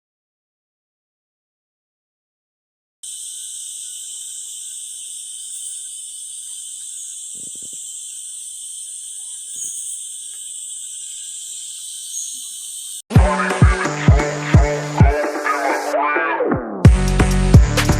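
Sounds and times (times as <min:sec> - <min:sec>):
insect chorus: 0:03.0 - 0:13.1.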